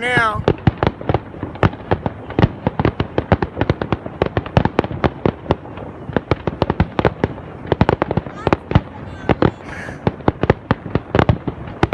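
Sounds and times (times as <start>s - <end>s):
fireworks popping and banging: 0.0s - 11.9s.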